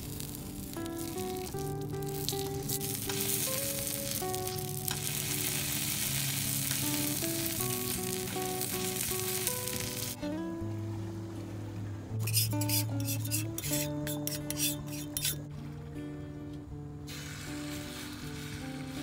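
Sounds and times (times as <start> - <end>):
patty sizzling on a griddle: 0.0 - 10.2, 12.3 - 15.4, 17.1 - 19.0
background music: 0.0 - 19.0.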